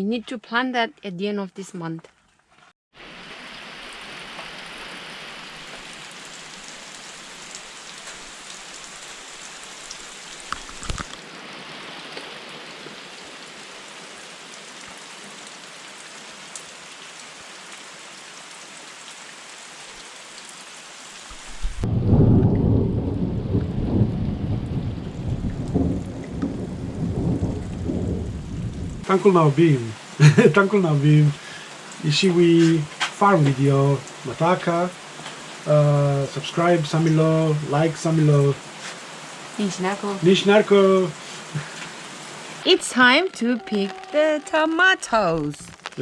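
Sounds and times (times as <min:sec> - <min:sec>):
rain hiss: 0:03.0 - 0:46.0
low rumble of thunder: 0:21.5 - 0:29.1.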